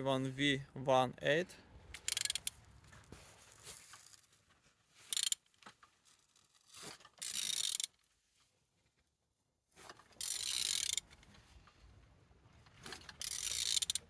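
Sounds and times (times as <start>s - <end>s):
ratchet wrench clicking: 2.0s - 2.5s, 5.1s - 5.4s, 7.2s - 7.9s, 10.2s - 11.0s, 13.2s - 14.0s.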